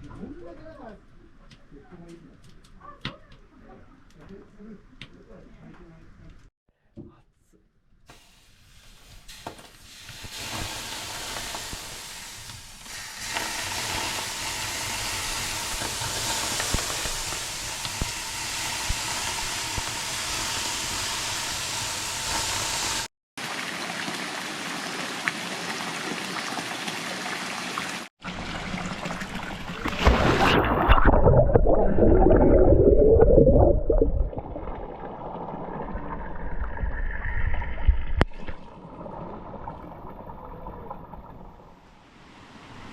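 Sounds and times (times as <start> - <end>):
deep rumbling: 30.7 - 38.3.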